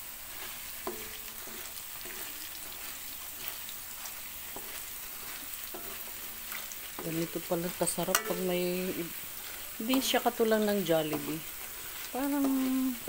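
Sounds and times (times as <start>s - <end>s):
metal tongs stirring fries: 0.0s - 13.0s
potatoes deep-frying in oil: 0.0s - 13.0s.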